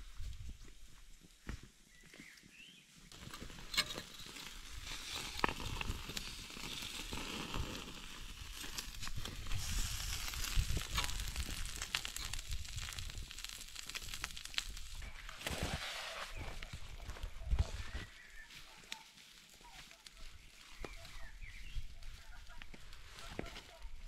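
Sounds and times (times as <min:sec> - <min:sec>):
food sizzling and crackling: 0:03.1 - 0:16.7.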